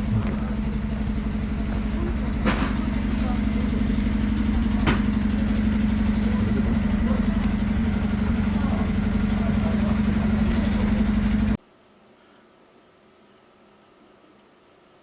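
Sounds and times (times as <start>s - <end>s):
diesel locomotive idling: 0.0s - 11.6s.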